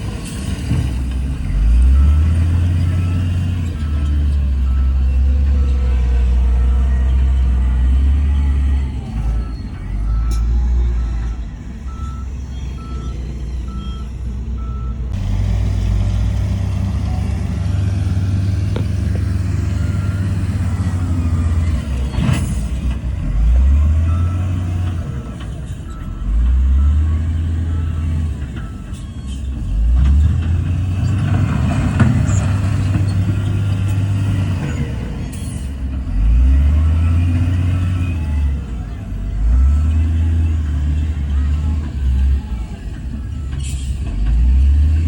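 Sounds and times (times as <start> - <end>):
diesel machinery engine: 0.0 - 45.0
reversing alarm beeps: 1.5 - 15.1, 23.4 - 29.6.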